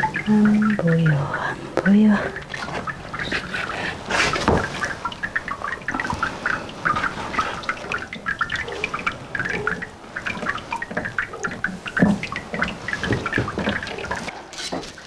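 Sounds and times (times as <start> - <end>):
water splashing and dripping: 0.0 - 15.0.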